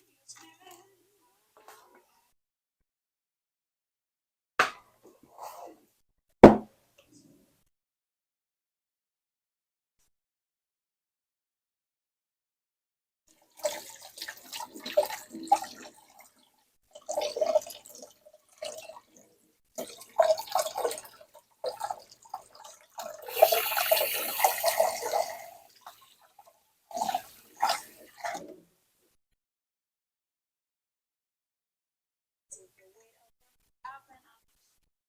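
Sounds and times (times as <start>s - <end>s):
water splashing and pouring: 13.4s - 16.4s, 19.8s - 28.4s.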